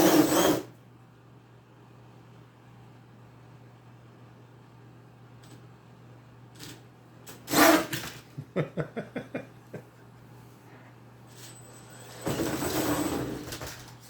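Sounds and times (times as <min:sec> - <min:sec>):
rc truck loud burst: 0:07.4 - 0:08.1.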